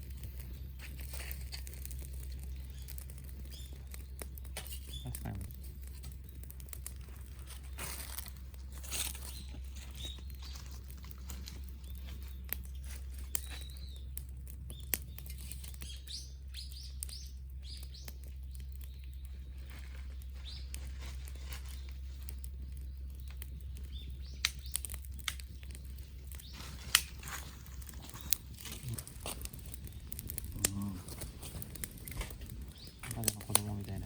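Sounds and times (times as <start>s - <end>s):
campfire crackling and popping: 0.0s - 34.0s
bird chirping: 2.4s - 6.6s, 9.1s - 20.9s, 22.6s - 29.0s, 32.0s - 34.0s
steady low rumble: 16.3s - 34.0s.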